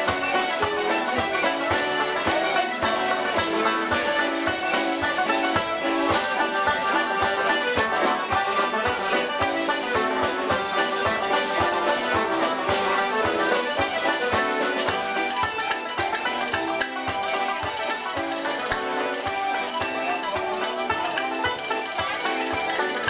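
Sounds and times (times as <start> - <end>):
lively traditional folk music: 0.0 - 23.0.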